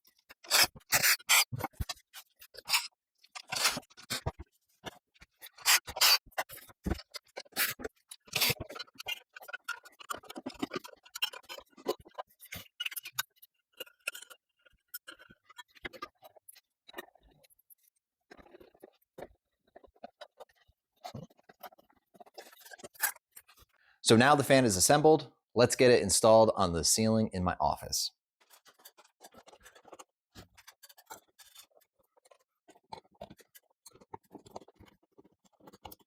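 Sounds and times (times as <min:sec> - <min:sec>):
parts scraping and clicking: 0:00.0 - 0:17.6.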